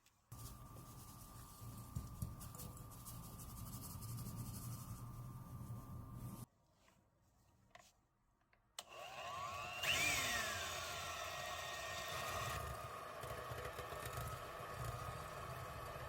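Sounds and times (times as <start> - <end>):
hand mixer motor running: 8.8 - 16.0.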